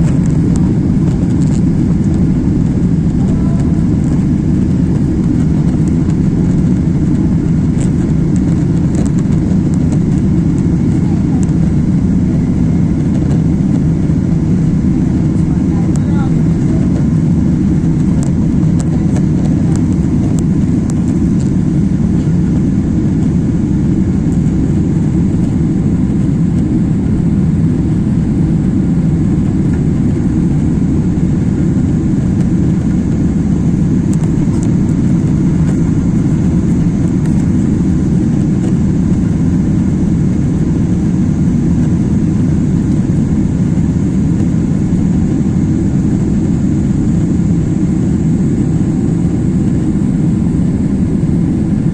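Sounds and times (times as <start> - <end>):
jet engine rumble in cabin: 0.0 - 51.9.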